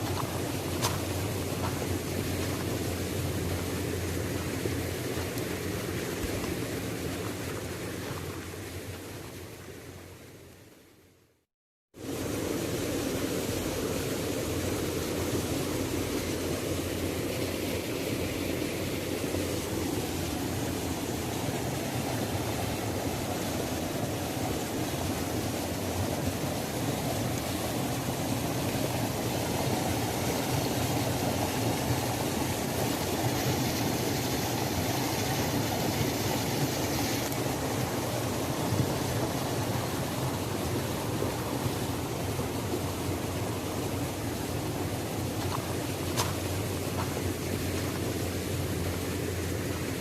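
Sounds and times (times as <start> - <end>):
waterfall splashing: 12.0 - 50.0.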